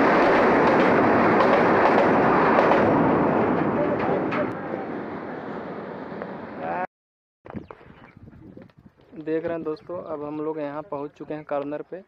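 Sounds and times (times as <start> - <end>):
passenger train on a bridge: 0.0 - 6.9.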